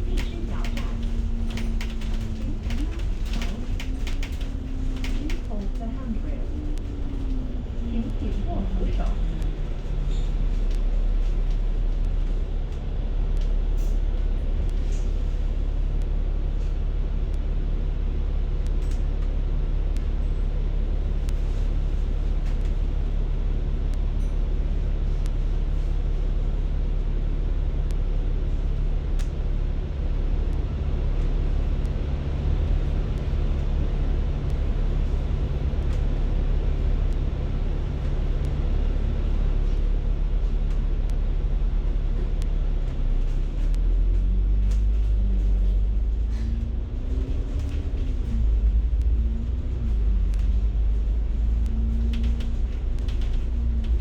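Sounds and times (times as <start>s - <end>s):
faint clicks and rattles: 0.0s - 12.8s, 27.8s - 54.0s
bus engine hum: 0.0s - 54.0s
road rumble: 0.0s - 54.0s.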